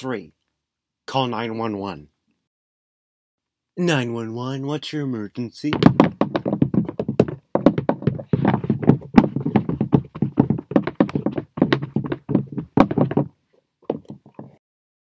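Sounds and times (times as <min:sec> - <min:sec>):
light rapid knocks and taps: 0:05.7 - 0:13.3, 0:13.9 - 0:14.6.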